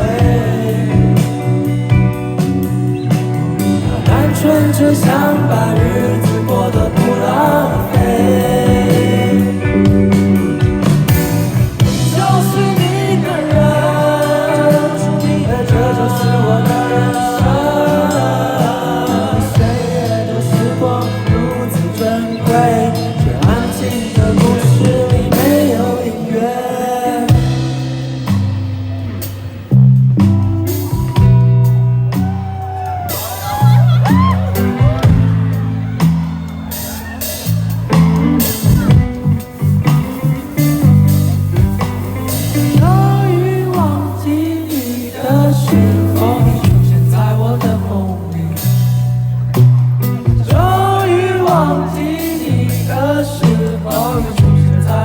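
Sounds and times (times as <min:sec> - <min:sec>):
heavy bass and drum hits: 0:00.0 - 0:25.9, 0:27.3 - 0:44.6, 0:45.3 - 0:55.0
person singing: 0:00.0 - 0:28.4, 0:30.7 - 0:55.0
guitar: 0:00.0 - 0:55.0
rock band playing live: 0:00.0 - 0:55.0.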